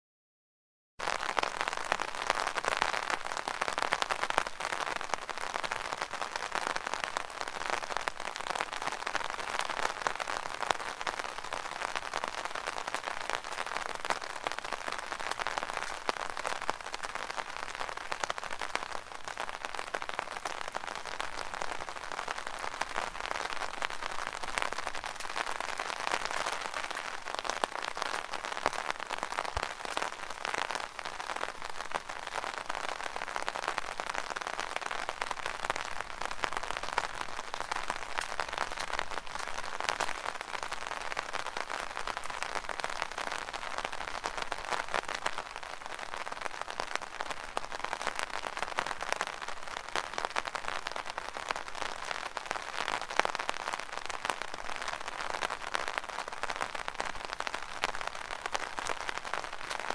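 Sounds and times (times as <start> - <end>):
rain on an umbrella: 1.0 - 59.9.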